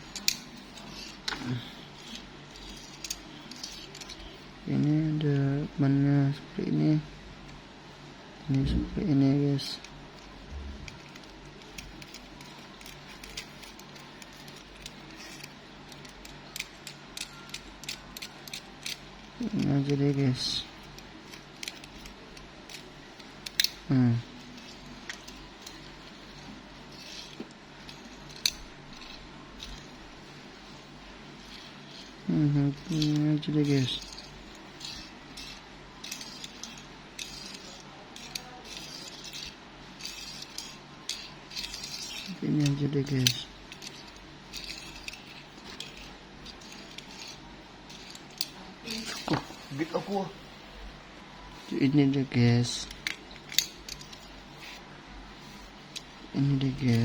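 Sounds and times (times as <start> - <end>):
plastic toy car clicking: 23.4 - 23.8.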